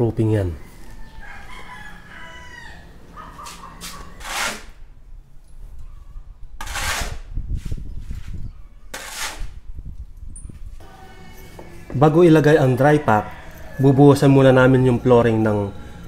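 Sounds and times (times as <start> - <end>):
rooster crowing: 0.4 - 4.2, 10.8 - 16.0
shovel scraping concrete floor: 3.4 - 4.8, 6.6 - 9.6.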